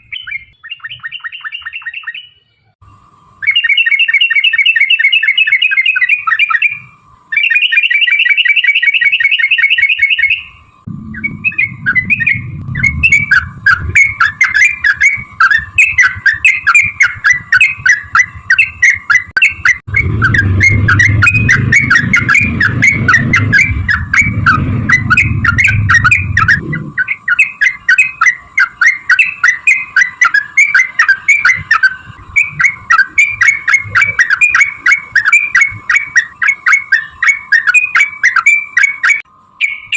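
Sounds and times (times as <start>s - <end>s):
bulbul song: 0.0s - 39.9s
low rumble: 10.8s - 18.6s, 19.8s - 27.3s.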